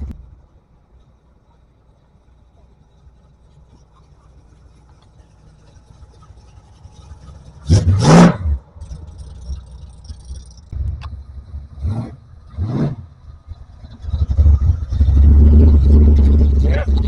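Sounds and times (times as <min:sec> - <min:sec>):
low engine and road rumble: 0:00.0 - 0:17.0
car engine revving: 0:04.4 - 0:17.0.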